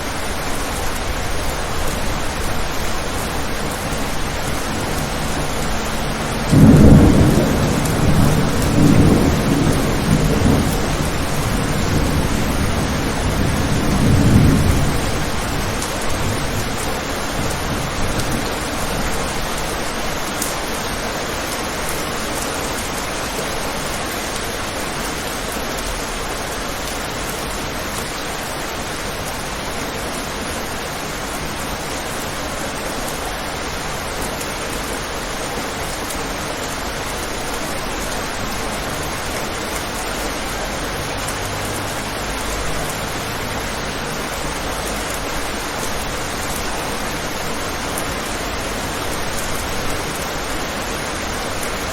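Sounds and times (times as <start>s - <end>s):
steady rain falling: 0.0s - 51.9s
thunder rumbling: 0.1s - 20.2s.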